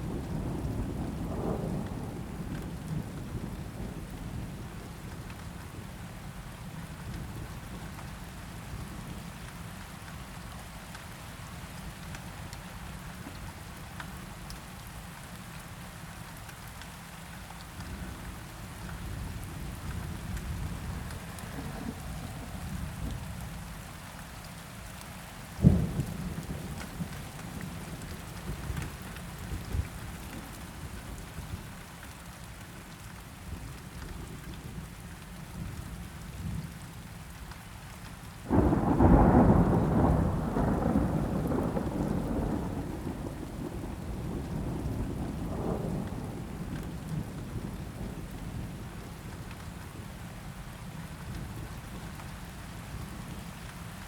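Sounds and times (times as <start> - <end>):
steady rain: 0.0 - 54.0
thunder rumbling: 19.2 - 23.4, 38.5 - 48.9
thunder crack: 38.5 - 43.9.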